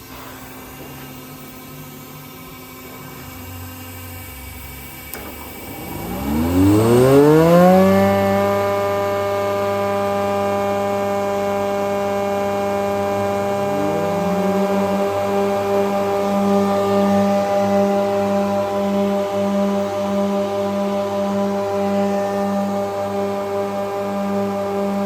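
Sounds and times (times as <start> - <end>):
spindle motor whine: 0.0 - 25.0
motor switch click: 5.1 - 6.2.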